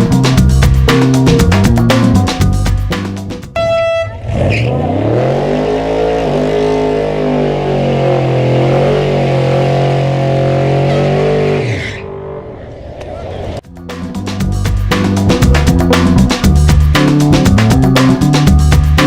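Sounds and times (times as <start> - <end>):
car engine revving: 4.0 - 12.8.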